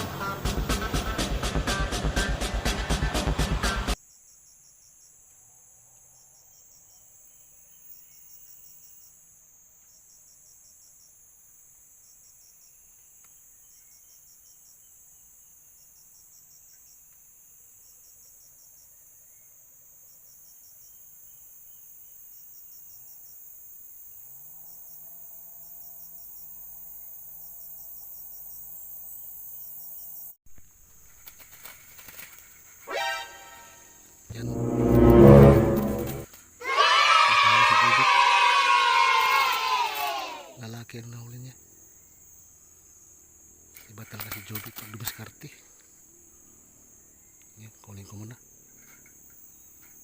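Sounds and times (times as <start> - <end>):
insect trills: 4.0 - 32.9, 39.2 - 50.0
constant high insect buzz: 4.0 - 34.3, 36.3 - 50.0
low droning hum: 34.3 - 36.2.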